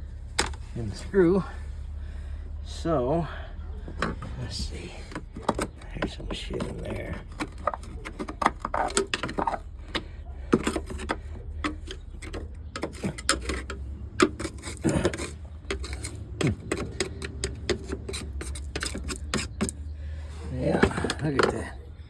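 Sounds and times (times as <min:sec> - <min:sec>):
rustling and scraping insulation: 0:00.0 - 0:22.0.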